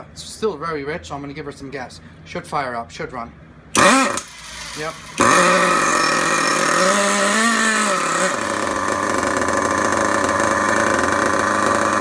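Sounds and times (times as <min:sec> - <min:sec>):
model engine running rough: 0:03.8 - 0:12.0.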